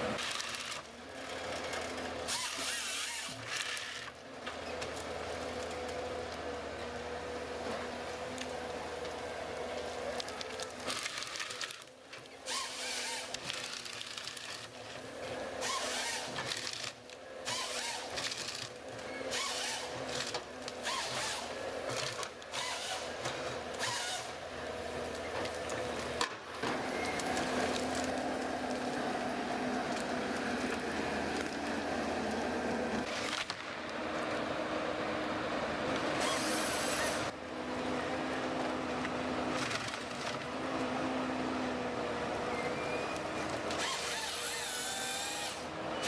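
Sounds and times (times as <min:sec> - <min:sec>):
machine cutting through wood: 0:12.5 - 0:14.5, 0:15.6 - 0:24.4, 0:36.2 - 0:37.3, 0:43.7 - 0:45.7
woodworking machine humming: 0:43.8 - 0:45.7.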